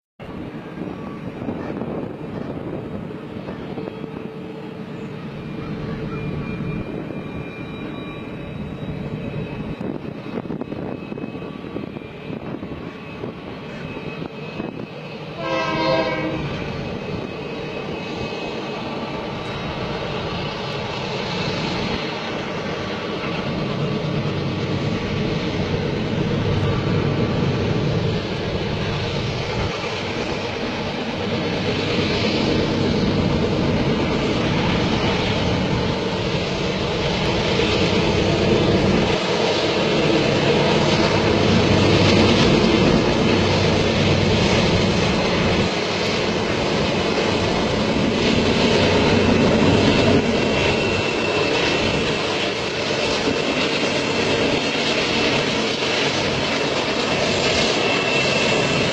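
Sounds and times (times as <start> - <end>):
freight train rumbling: 0.2 - 58.9
train horn blast: 15.4 - 16.7.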